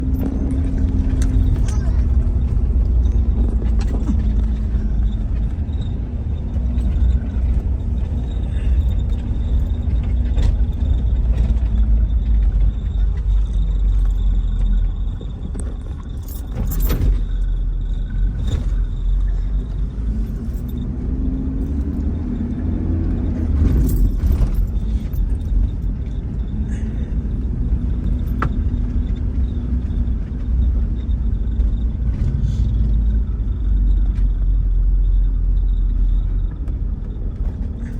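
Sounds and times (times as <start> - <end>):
knocks and rattles from bumps: 0.0 - 20.8
car engine and tyres rumbling: 0.0 - 37.9.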